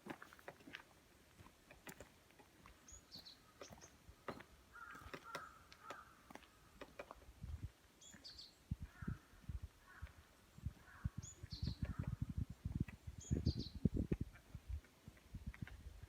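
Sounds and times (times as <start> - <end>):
footsteps on gravel path: 0.0 - 9.2, 9.9 - 13.4, 14.0 - 16.0
small bird calling: 2.8 - 6.9, 8.0 - 14.6.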